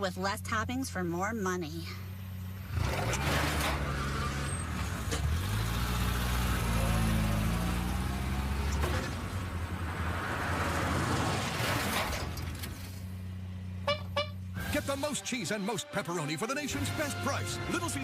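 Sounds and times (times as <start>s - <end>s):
vehicle engine running: 0.0s - 11.6s.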